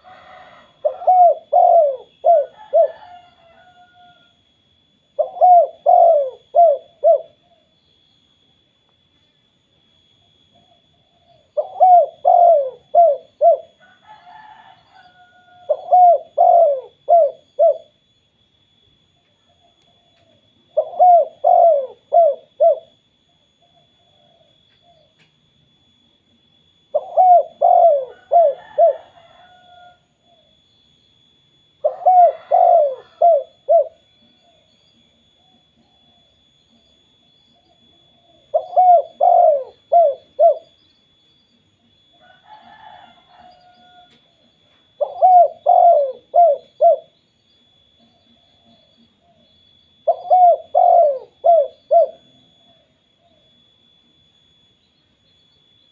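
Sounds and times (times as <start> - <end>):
dove cooing: 0.0 - 4.3, 5.1 - 7.8, 10.6 - 18.0, 19.2 - 25.2, 26.9 - 30.6, 31.8 - 40.9, 42.1 - 47.2, 48.0 - 53.6.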